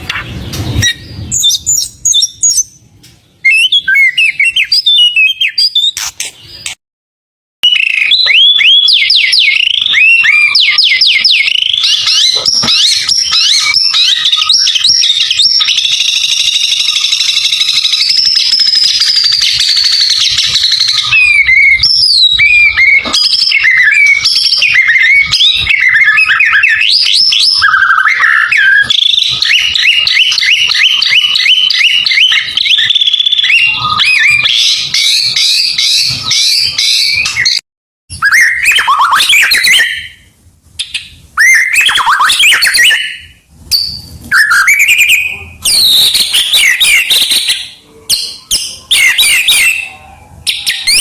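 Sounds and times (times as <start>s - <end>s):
songbird singing: 0.0s - 6.8s, 7.6s - 37.6s.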